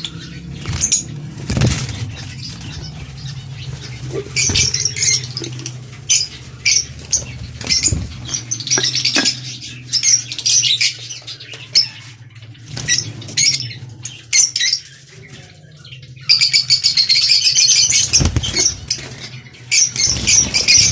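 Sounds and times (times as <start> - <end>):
steady low hum: 0.0 - 16.3
lovebirds chattering: 0.0 - 20.9.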